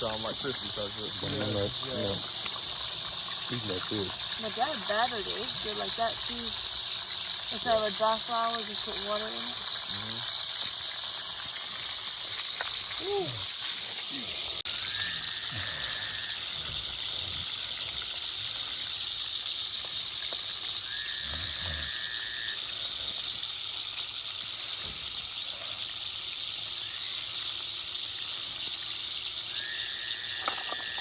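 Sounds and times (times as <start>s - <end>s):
steady high-pitched animal drone: 0.0s - 2.4s, 14.1s - 18.9s, 20.7s - 23.4s, 26.6s - 27.6s, 29.4s - 31.0s
whistle-like animal call: 14.7s - 16.9s, 20.8s - 22.7s, 29.5s - 31.0s.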